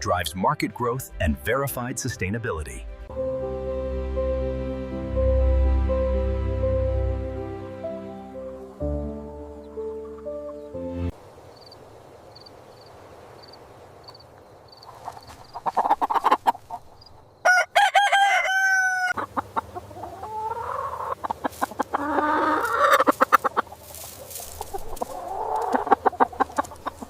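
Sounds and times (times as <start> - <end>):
chickens clucking: 9.2 - 11.0, 14.7 - 27.0
rooster crowing: 17.4 - 19.2.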